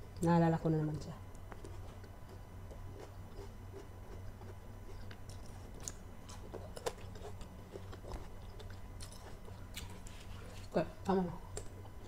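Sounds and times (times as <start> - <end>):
person chewing grapes: 1.3 - 10.8.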